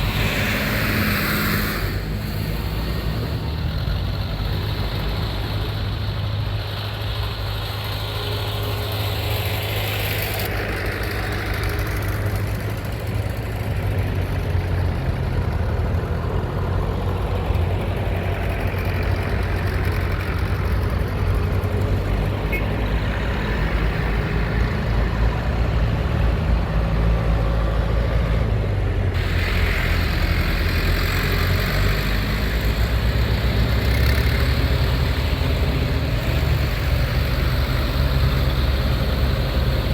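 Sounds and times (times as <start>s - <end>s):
hiss: 0.0s - 2.8s
tractor engine running: 0.0s - 39.9s.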